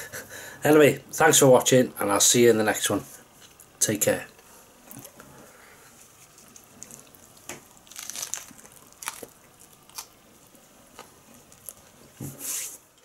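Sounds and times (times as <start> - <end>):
person chewing crunchy wrap: 6.1 - 12.0.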